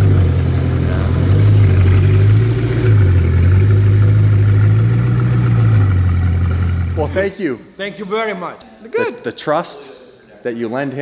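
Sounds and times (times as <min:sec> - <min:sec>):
car engine idling: 0:00.0 - 0:07.3.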